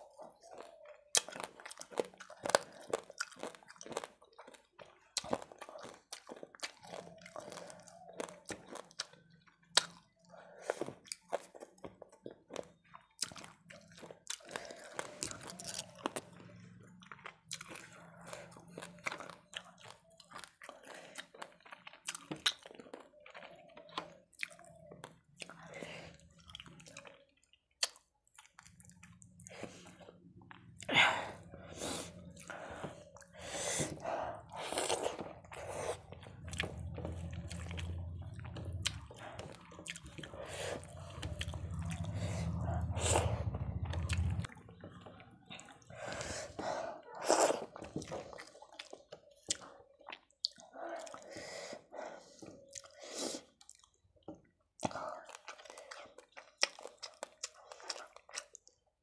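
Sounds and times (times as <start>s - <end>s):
person eating with wet chewing: 0.0s - 59.0s
low hum: 34.0s - 46.5s.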